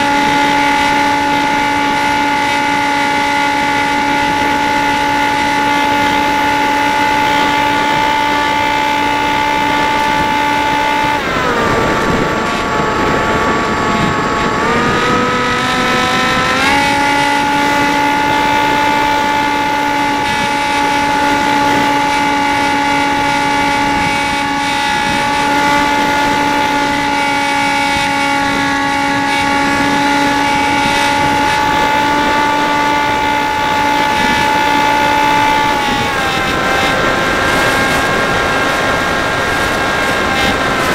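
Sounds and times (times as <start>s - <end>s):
model airplane motor whining: 0.0s - 40.9s.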